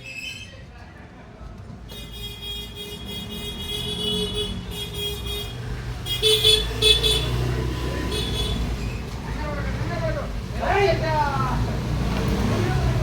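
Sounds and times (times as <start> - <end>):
road traffic: 0.0 - 13.0
vehicle horns: 1.9 - 8.8.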